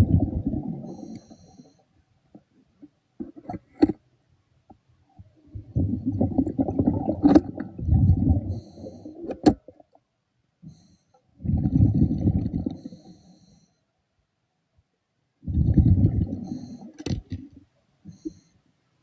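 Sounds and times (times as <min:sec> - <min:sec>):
air bubbling underwater: 0:00.0 - 0:01.0, 0:05.6 - 0:08.9, 0:11.4 - 0:12.8, 0:15.4 - 0:16.7.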